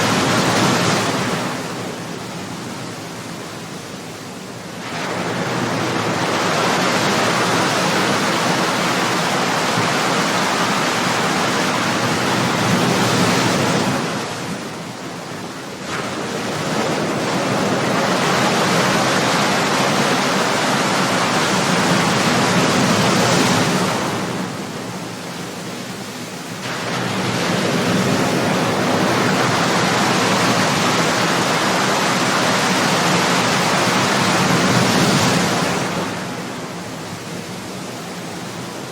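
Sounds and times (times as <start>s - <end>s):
waves breaking: 0.0s - 38.9s.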